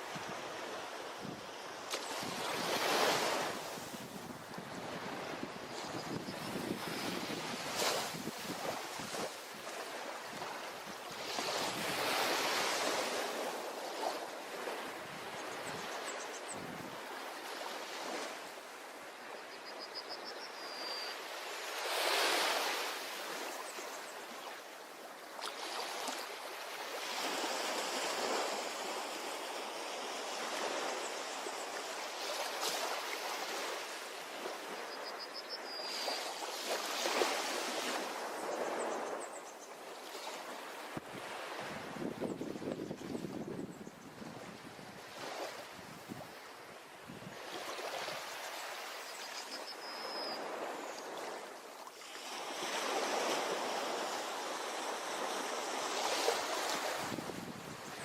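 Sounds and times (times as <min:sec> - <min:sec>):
ocean surf on a shore: 0:00.0 - 0:19.6, 0:21.1 - 0:58.0
faint high chirp: 0:19.3 - 0:21.3, 0:34.7 - 0:36.5, 0:47.6 - 0:51.2.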